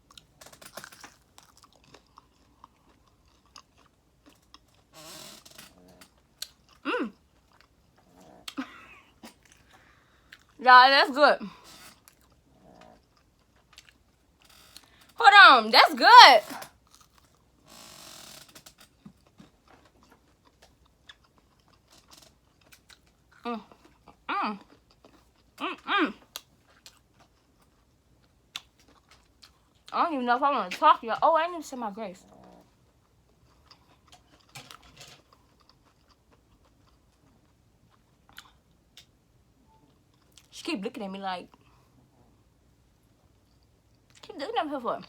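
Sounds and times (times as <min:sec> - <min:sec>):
faint chewing: 0:00.0 - 0:04.9, 0:05.6 - 0:10.6, 0:11.5 - 0:15.2, 0:16.5 - 0:17.5, 0:18.5 - 0:30.0, 0:32.2 - 0:40.6.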